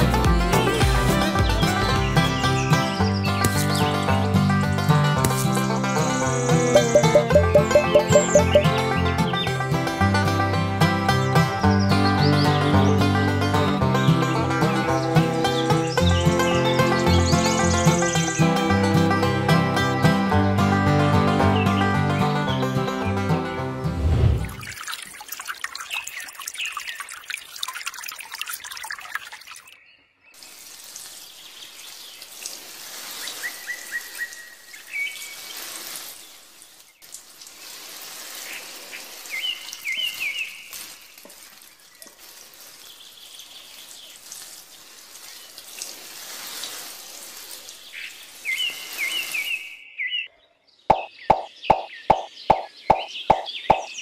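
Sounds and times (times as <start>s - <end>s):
bird chirps: 6.5s - 9.0s, 48.0s - 54.0s
water trickling from watering can: 6.7s - 8.8s, 24.4s - 29.8s, 30.4s - 49.6s.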